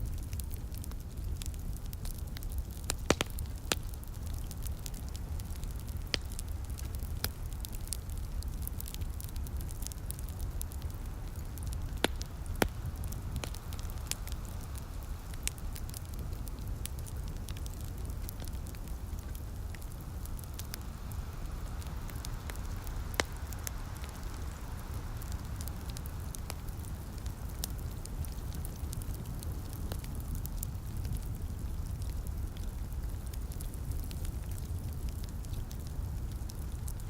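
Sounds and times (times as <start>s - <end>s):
soft rain hiss: 0.0s - 37.0s
wood fire crackling and popping: 0.0s - 37.0s.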